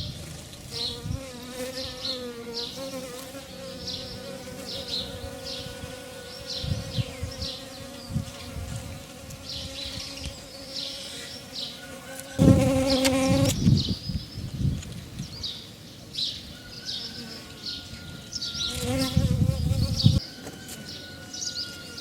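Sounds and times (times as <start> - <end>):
small birds chirping: 0.0 - 22.0
flying insect buzzing close by: 0.6 - 13.9, 18.6 - 20.2
steady insect buzz: 0.6 - 13.9, 18.6 - 20.2.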